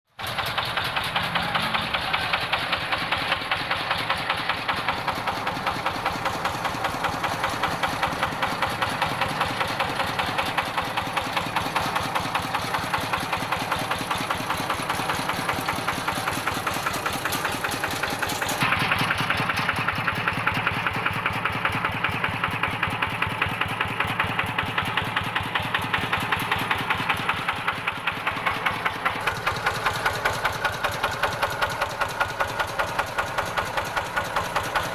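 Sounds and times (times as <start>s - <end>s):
tractor diesel engine idling: 0.1s - 34.9s.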